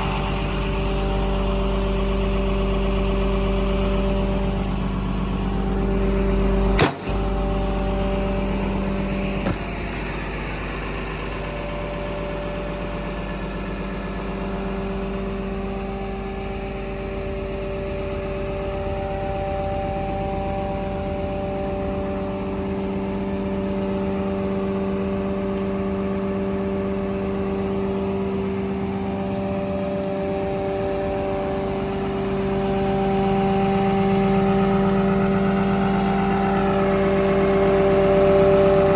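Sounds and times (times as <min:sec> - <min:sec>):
bulldozer diesel engine running: 0:00.0 - 0:38.9
sharp click: 0:06.8 - 0:07.2.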